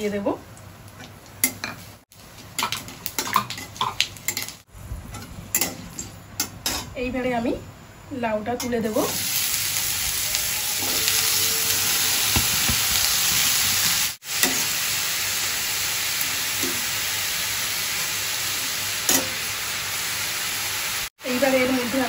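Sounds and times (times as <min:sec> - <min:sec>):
vegetables sizzling in hot oil: 0:08.8 - 0:22.0
spatula knocking on pan: 0:12.3 - 0:13.1.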